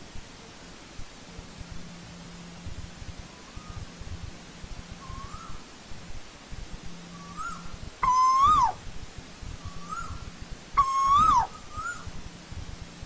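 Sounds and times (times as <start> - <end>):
bird whistled calls: 5.0 - 5.6, 7.1 - 8.8, 9.6 - 10.2, 10.8 - 12.1
faint shorter bird whistles: 5.0 - 5.6, 7.1 - 8.8, 9.7 - 10.2, 10.8 - 12.1.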